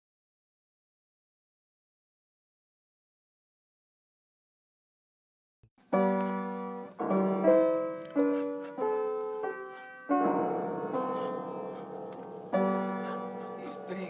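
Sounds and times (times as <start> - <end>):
piano note clusters: 6.0 - 14.0.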